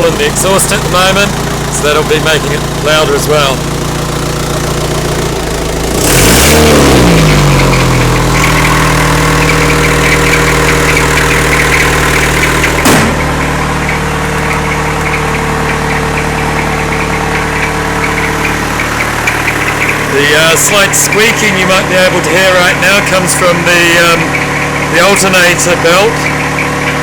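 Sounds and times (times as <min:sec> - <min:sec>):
diesel engine revving and idling: 0:00.0 - 0:27.0
sharp engine knock: 0:00.0 - 0:27.0
belt squeak: 0:07.3 - 0:20.2.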